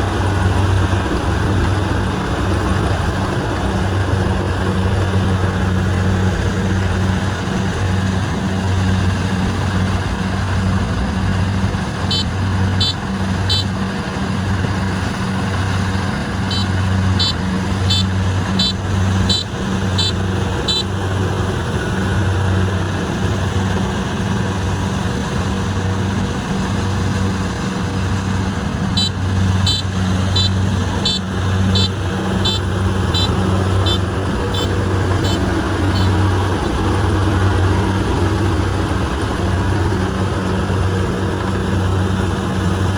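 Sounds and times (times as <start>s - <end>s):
diesel engine running: 0.0s - 42.9s
short high beeps: 12.1s - 13.7s, 16.5s - 20.9s, 29.0s - 31.2s, 31.8s - 36.2s.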